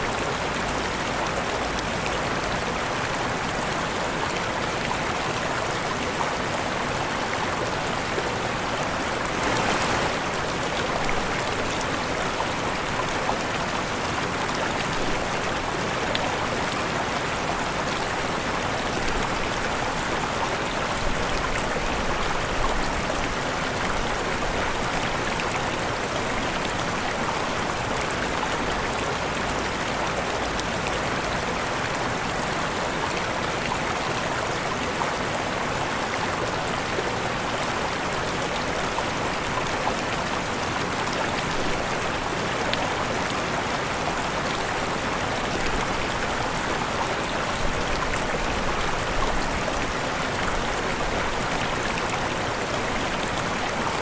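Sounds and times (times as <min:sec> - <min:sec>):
waterfall rushing: 0:05.0 - 0:27.9.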